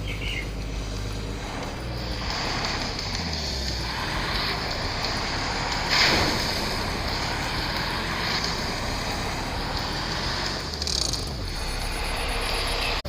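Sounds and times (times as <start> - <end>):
steady rushing noise: 0.0 - 13.0
truck engine running: 0.0 - 13.0.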